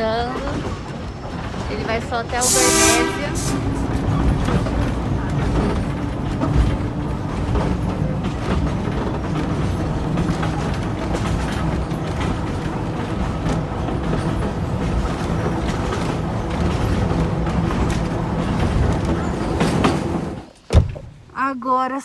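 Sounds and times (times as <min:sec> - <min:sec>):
train rumbling on board: 0:00.0 - 0:21.3.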